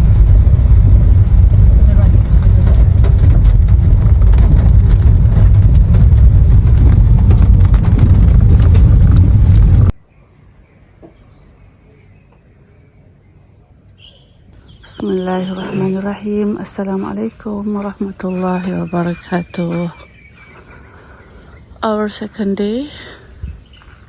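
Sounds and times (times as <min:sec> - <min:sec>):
heavy rain pouring: 0:00.0 - 0:09.9
wind rumble on microphone: 0:00.0 - 0:10.0, 0:23.3 - 0:24.0.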